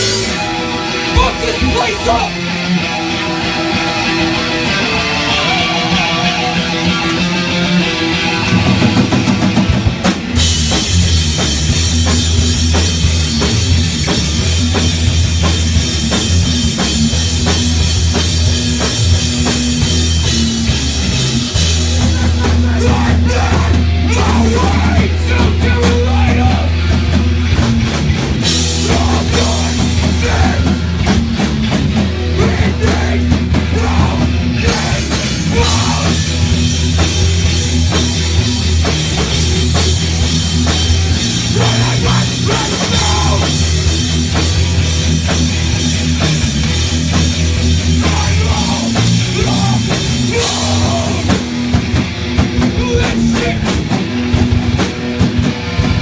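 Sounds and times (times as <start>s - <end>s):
bass guitar: 0.0s - 56.0s
distorted guitars: 0.0s - 56.0s
drum kit pounding: 0.0s - 56.0s.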